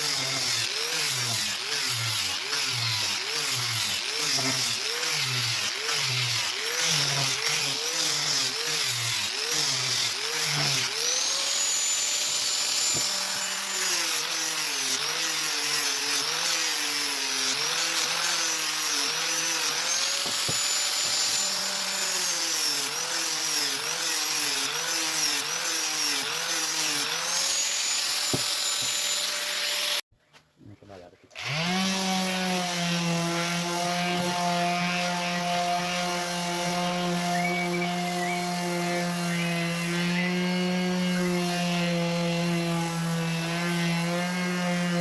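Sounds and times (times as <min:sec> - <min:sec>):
electric power tool on wood: 0:00.0 - 0:30.1, 0:31.4 - 0:45.0.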